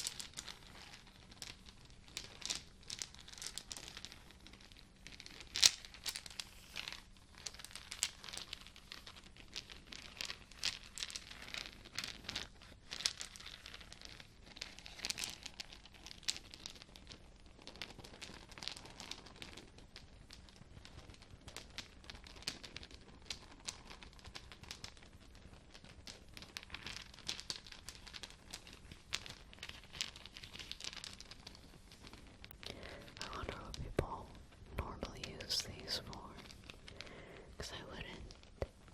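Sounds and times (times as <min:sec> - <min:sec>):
crinkling and crackling: 0:00.0 - 0:38.9.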